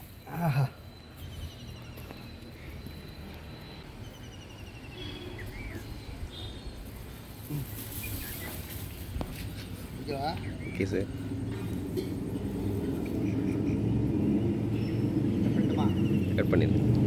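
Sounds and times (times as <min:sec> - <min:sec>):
faint bird chirps: 0:00.0 - 0:09.0.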